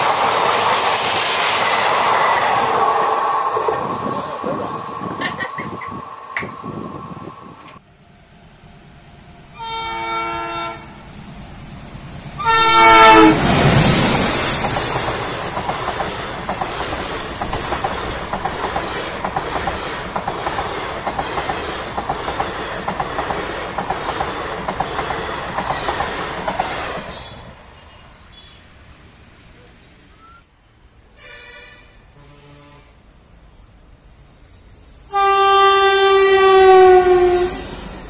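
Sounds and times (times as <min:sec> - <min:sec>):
wheels clickety-clack on rail: 0:00.0 - 0:06.9, 0:13.0 - 0:27.6
passenger train passing: 0:00.0 - 0:38.0
train horn blasts: 0:09.5 - 0:11.1, 0:12.4 - 0:13.5, 0:31.2 - 0:33.0, 0:35.1 - 0:37.7.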